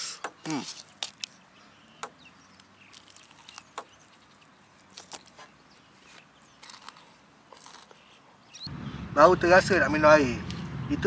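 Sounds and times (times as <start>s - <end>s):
chewing crispy fried chicken: 2.9s - 3.7s, 6.6s - 8.0s.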